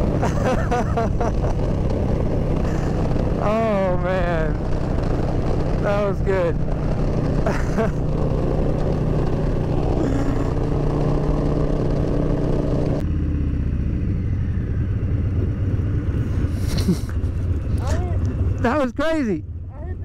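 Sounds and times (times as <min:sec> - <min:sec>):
motorcycle engine running: 0:00.0 - 0:20.0
wind noise: 0:14.0 - 0:18.5.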